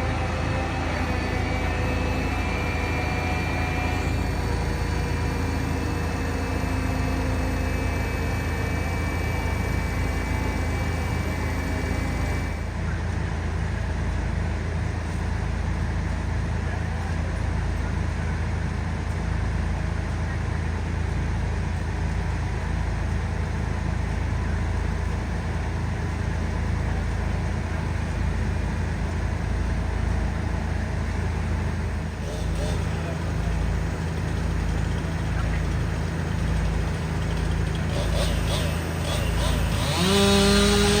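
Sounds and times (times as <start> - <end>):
high-pitched whine: 0.0 - 13.2
diesel engine droning: 0.0 - 41.0.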